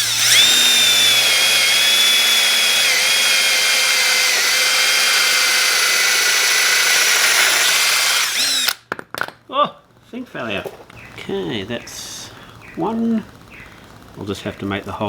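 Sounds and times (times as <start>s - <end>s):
electric drill cutting rubber: 0.0s - 8.8s.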